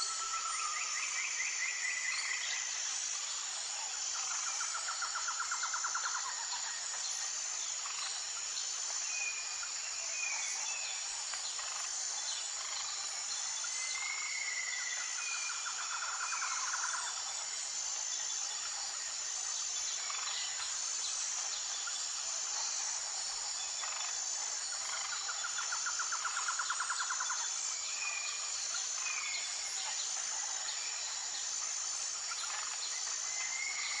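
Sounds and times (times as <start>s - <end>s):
high-pitched insect chorus: 0.0s - 34.0s.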